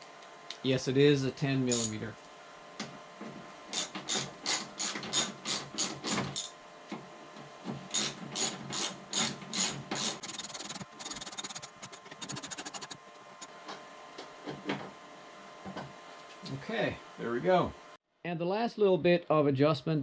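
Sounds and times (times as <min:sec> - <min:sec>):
hand ratchet clicking: 0:03.8 - 0:06.5, 0:08.0 - 0:13.0.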